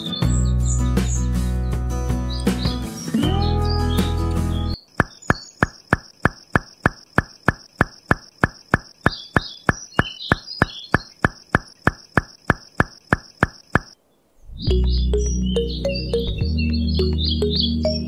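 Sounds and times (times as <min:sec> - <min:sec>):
faint chirps: 0:02.3 - 0:18.0
sharp regular ticking: 0:04.8 - 0:14.0.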